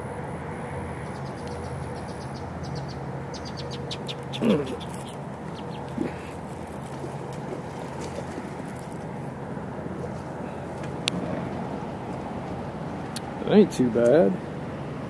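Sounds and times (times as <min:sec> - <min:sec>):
steady low hum: 0:00.0 - 0:15.0
clucking bird call: 0:03.9 - 0:06.4.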